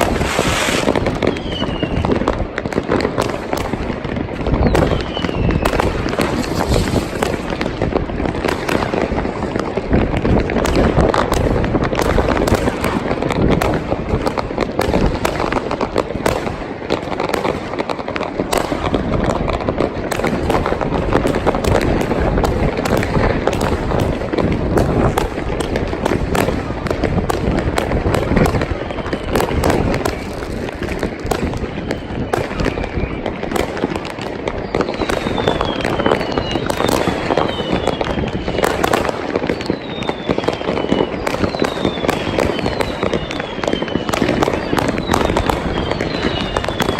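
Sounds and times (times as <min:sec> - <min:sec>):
whistling rocket: 0:00.0 - 0:15.4, 0:26.3 - 0:46.9
fireworks and firecrackers banging: 0:00.0 - 0:46.9.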